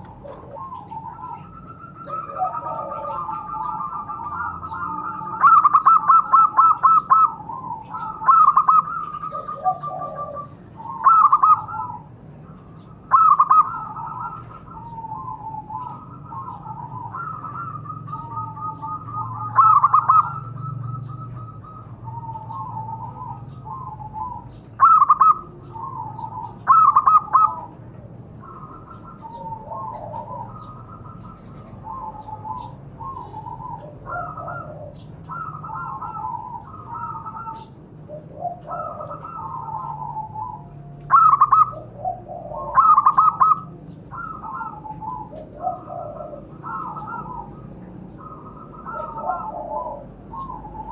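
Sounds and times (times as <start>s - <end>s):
doves cooing: 0.0s - 50.9s.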